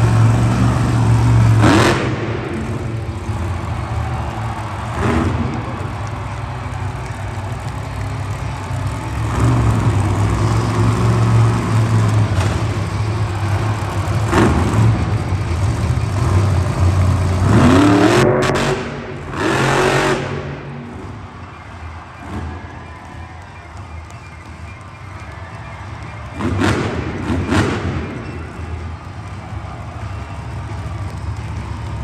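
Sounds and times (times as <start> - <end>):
monster truck engine revving: 0.0 - 32.0.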